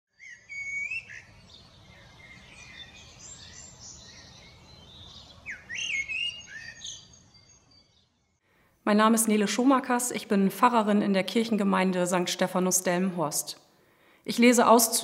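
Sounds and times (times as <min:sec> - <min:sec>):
songbirds chirping and singing: 0:00.1 - 0:08.4.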